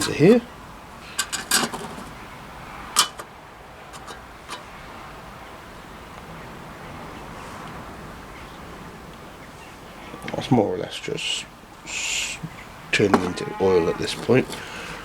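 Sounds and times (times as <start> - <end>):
faint steady hiss: 0.0 - 15.0
containers clicking and knocking: 3.9 - 4.6.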